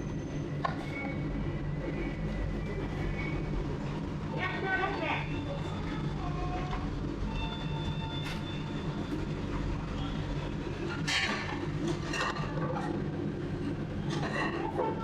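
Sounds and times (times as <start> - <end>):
low mechanical hum: 0.0 - 15.0
faint voices: 2.5 - 7.9
dishes clattering: 11.0 - 13.0, 14.1 - 15.0.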